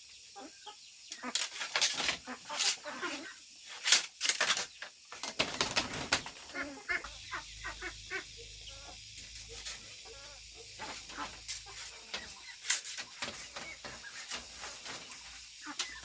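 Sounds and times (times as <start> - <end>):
chickens clucking: 0.0 - 16.0
sharp scraping strokes: 10.7 - 16.0.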